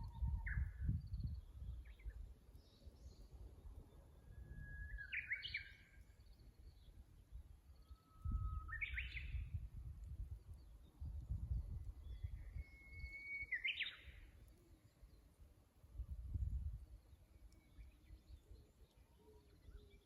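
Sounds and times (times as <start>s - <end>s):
bush warbler singing: 4.8s - 6.0s, 10.6s - 14.3s.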